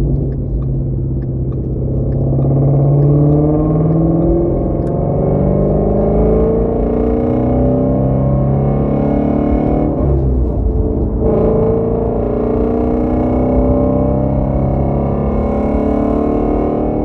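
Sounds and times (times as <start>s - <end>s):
car engine cruising: 0.0s - 17.0s.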